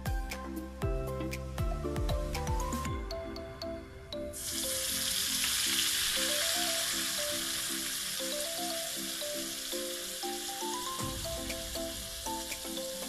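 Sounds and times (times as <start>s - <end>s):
chicken sizzling in a wok: 4.4s - 13.0s.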